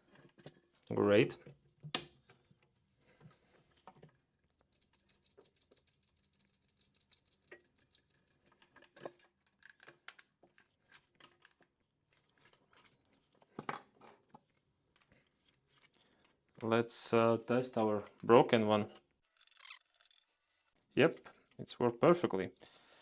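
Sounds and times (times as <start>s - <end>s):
small electronic parts clicking: 19.3s - 21.6s.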